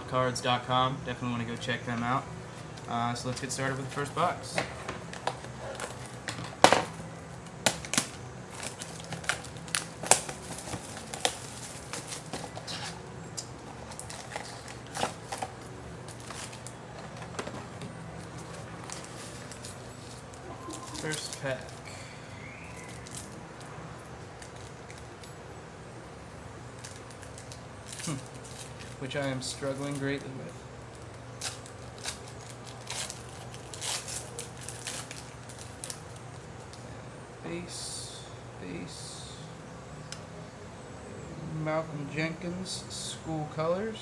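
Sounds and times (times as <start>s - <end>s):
low room hum: 0.0s - 44.0s
packaging snaps and clicks: 4.6s - 21.8s, 22.8s - 23.4s
wrapper crackles: 7.4s - 22.0s, 22.6s - 23.7s, 24.3s - 25.4s, 26.8s - 36.8s
foil wrapper being opened: 7.7s - 17.5s, 18.2s - 21.9s, 22.7s - 23.7s, 26.8s - 36.8s.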